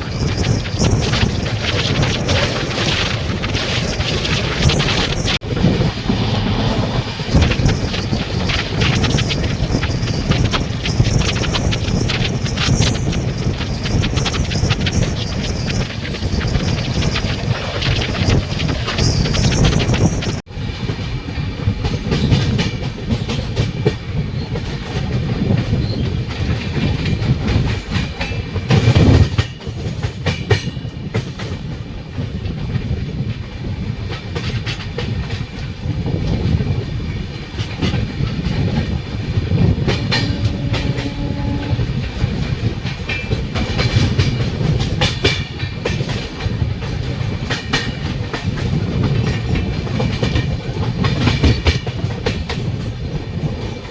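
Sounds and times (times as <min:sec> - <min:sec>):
train rumbling at speed: 0:00.0 - 0:53.9
brief steady tone: 0:39.9 - 0:41.9.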